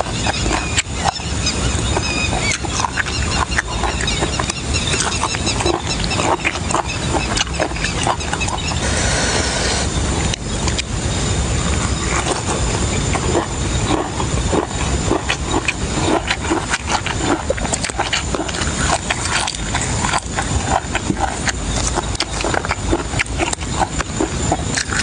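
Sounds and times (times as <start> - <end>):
wet chewing and mouth smacks: 0.0 - 8.9, 10.2 - 10.9, 11.7 - 25.0.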